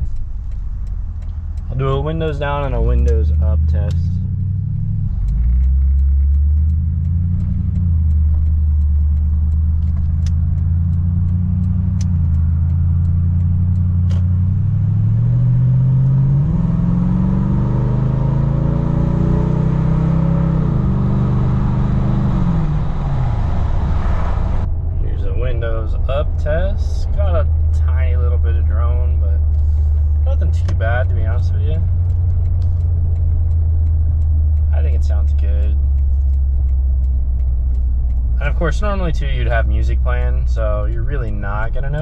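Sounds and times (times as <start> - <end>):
truck exhaust while driving: 0.0 - 42.0.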